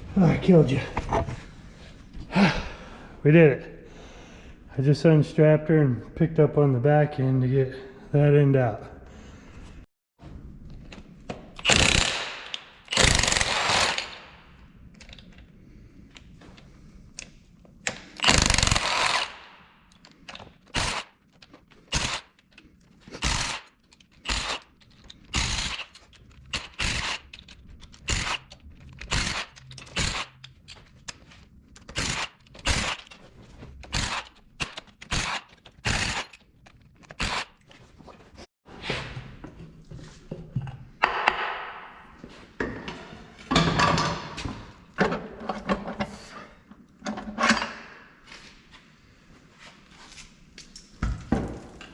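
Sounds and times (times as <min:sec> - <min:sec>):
handheld power tool running: 0:11.6 - 0:14.2, 0:18.2 - 0:19.5, 0:20.7 - 0:21.1, 0:21.9 - 0:22.3, 0:23.2 - 0:24.7, 0:25.3 - 0:27.4, 0:28.0 - 0:30.4, 0:31.9 - 0:33.1, 0:33.9 - 0:36.4.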